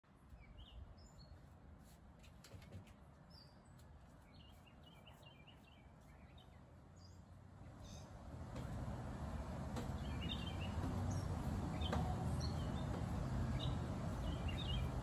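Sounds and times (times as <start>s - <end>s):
faint birds chirping: 0.2s - 1.6s, 2.8s - 8.8s, 9.8s - 15.0s
low outdoor rumble: 6.8s - 15.0s.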